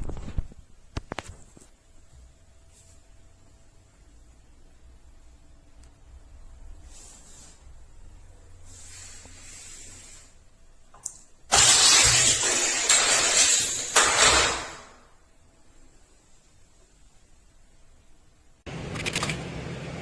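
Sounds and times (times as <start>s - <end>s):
toy car rattling along plastic track: 11.5s - 15.0s.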